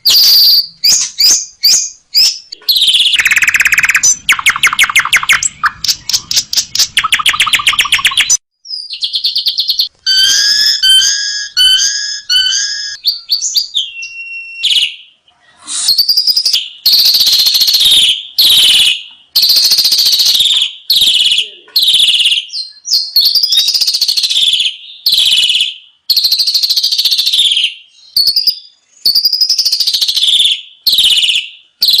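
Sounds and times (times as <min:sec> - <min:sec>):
starling song: 0:00.0 - 0:17.0.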